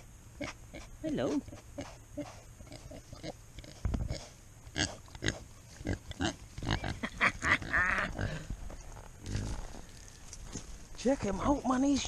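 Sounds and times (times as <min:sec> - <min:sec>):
pig grunting and snorting: 0:00.4 - 0:08.5, 0:09.2 - 0:09.8.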